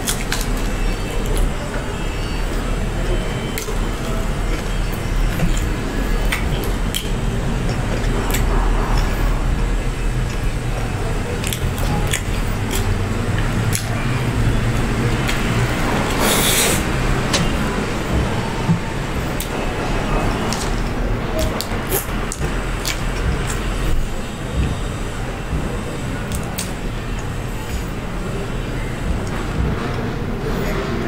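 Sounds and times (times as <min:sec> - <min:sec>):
chewing crispy food: 0:00.0 - 0:09.5, 0:10.2 - 0:24.8
mouth clicks and smacks: 0:02.4 - 0:19.6, 0:20.2 - 0:28.0
burst of noise: 0:11.7 - 0:30.4.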